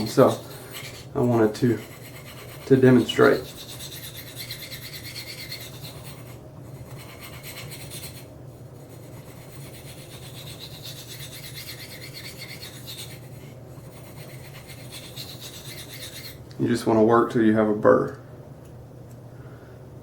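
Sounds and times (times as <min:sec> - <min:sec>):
knife scraping on ceramic stone: 0:00.0 - 0:08.3, 0:08.9 - 0:16.4.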